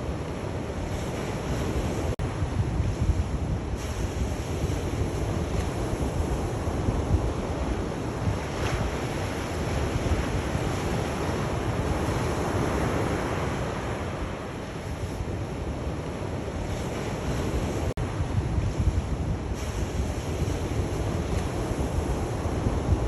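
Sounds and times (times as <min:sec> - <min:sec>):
sea waves washing onto shore: 0:00.0 - 0:23.0
wind rumble on microphone: 0:00.0 - 0:23.0.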